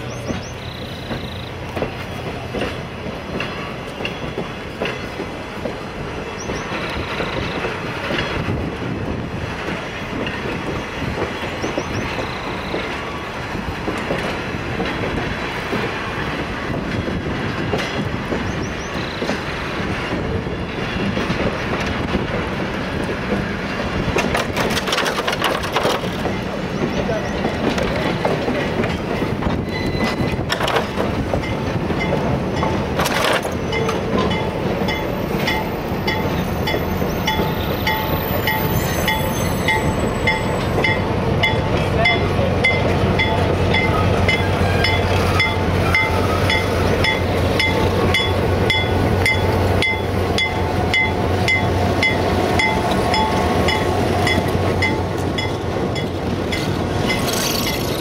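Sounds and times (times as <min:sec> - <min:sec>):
wheels clicking over rail joints: 0:00.0 - 0:08.7, 0:21.0 - 0:58.0
train wheels rumbling on rails: 0:00.0 - 0:58.0.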